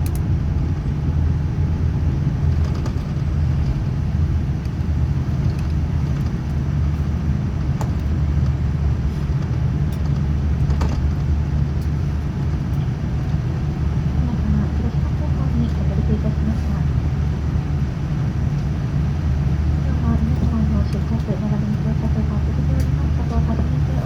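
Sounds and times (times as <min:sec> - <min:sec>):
aircraft cabin low rumble: 0:00.0 - 0:24.0
faint rattles and clicks: 0:02.4 - 0:08.6, 0:09.3 - 0:13.7.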